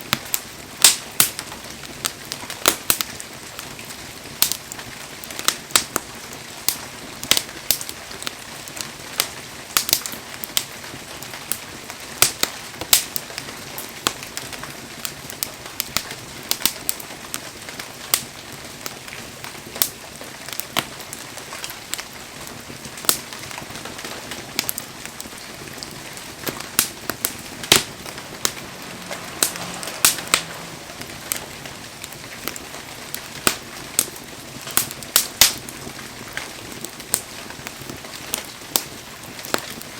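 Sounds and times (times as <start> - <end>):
firewood crackling and popping: 0.0 - 39.9
fire hiss: 24.6 - 35.6.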